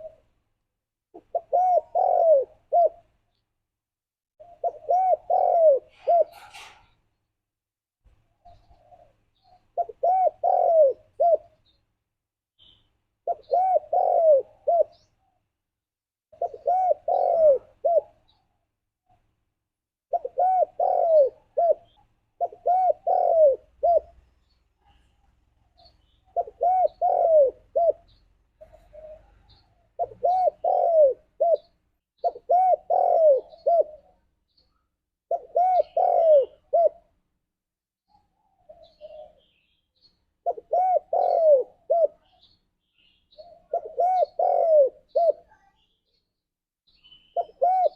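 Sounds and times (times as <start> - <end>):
dove cooing: 0.0 - 0.3, 1.2 - 3.2, 4.4 - 6.8, 8.4 - 11.7, 13.2 - 15.2, 16.3 - 18.4, 20.1 - 37.2, 38.1 - 39.6, 40.4 - 42.5, 43.3 - 45.5, 47.4 - 47.9.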